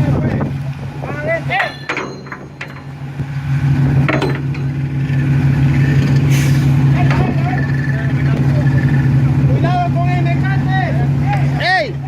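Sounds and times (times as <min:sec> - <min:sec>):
low engine drone: 0:00.0 - 0:12.0
sharp knocks: 0:01.8 - 0:03.3, 0:04.0 - 0:04.8.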